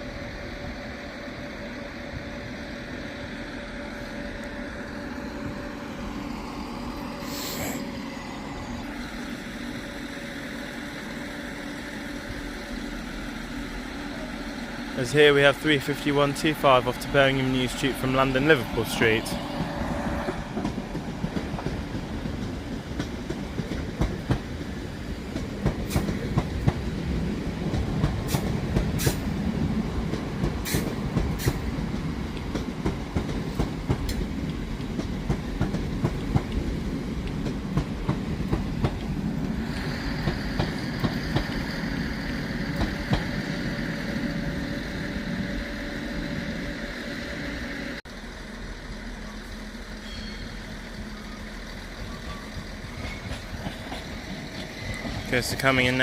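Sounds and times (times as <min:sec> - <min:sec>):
train wheels clattering over joints: 0:51.0 - 0:55.6.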